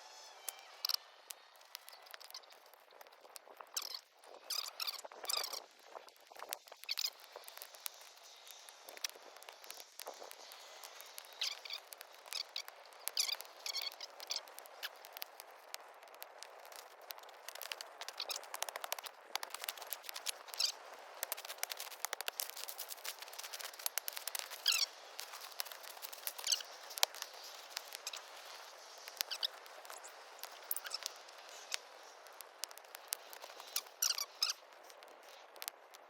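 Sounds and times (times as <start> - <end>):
short high squeaks: 0.0 - 2.7, 11.0 - 15.0, 22.9 - 31.8, 33.0 - 34.6
campfire crackling and popping: 0.0 - 36.0
fire hiss: 0.0 - 36.0.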